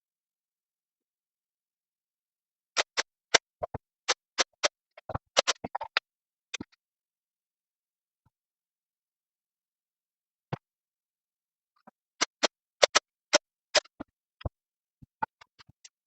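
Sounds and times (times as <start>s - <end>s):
sharp clicks and knocks: 12.2s - 15.9s.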